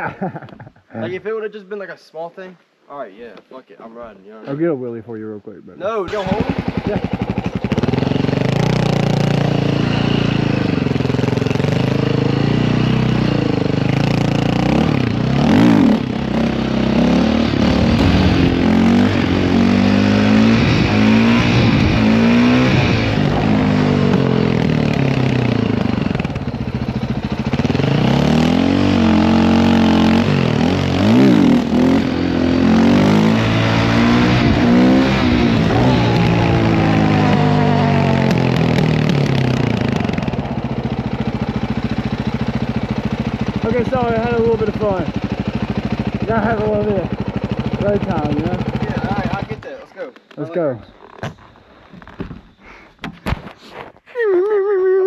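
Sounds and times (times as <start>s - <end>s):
dirt bike engine revving: 6.1s - 49.6s.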